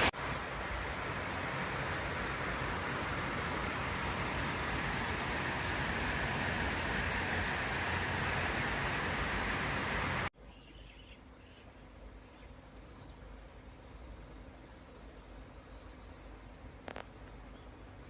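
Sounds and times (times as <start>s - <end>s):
waterfall rushing: 0.0s - 10.3s.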